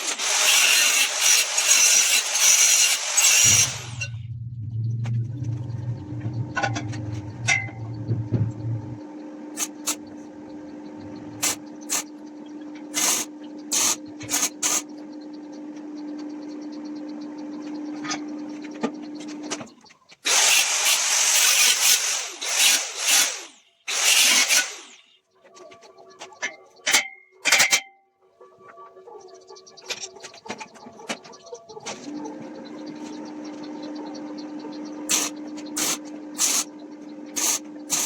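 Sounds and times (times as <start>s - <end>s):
steady low hum: 3.4s - 19.8s.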